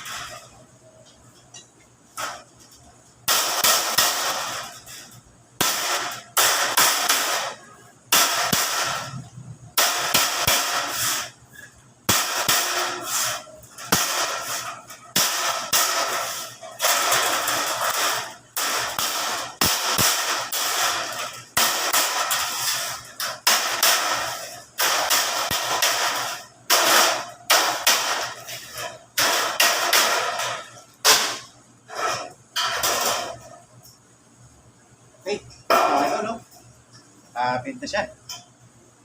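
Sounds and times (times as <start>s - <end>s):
hammer blows on sheet metal: 3.3s - 33.5s.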